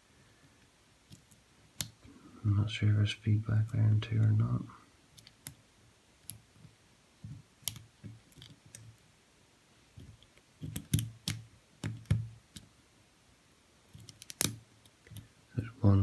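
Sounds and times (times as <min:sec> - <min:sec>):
lock pick clicking in padlock: 0:14.0 - 0:15.2.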